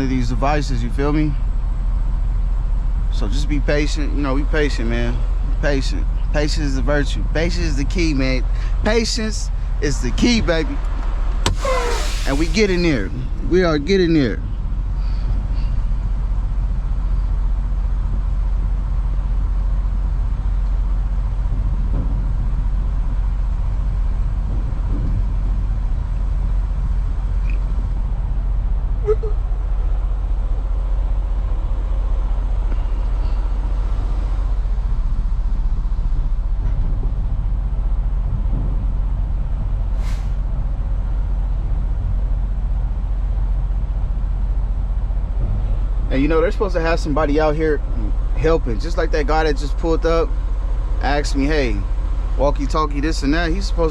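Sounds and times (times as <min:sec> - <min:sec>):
diesel engine idling: 0:00.0 - 0:53.9
short sharp sound: 0:11.5 - 0:13.2, 0:40.0 - 0:40.4.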